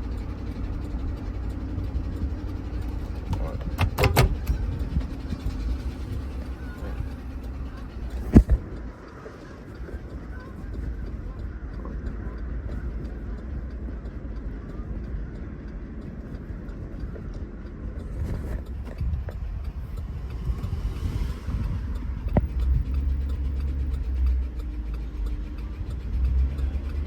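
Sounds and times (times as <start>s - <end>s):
car engine running: 0.0s - 27.0s
engine rod knock: 2.1s - 8.8s.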